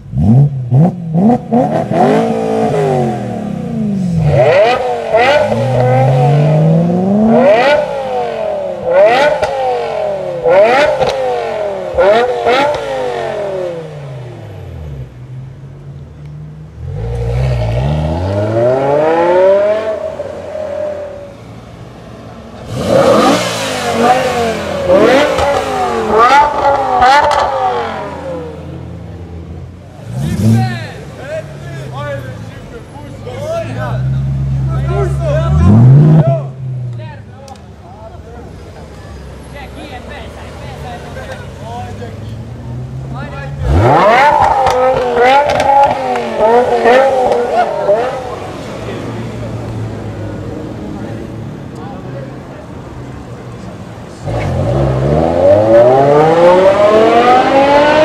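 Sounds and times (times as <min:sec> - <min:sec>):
car engine revving in sharp blips: 0:00.0 - 0:21.6, 0:22.6 - 0:31.5, 0:41.3 - 0:51.9, 0:53.9 - 0:58.0.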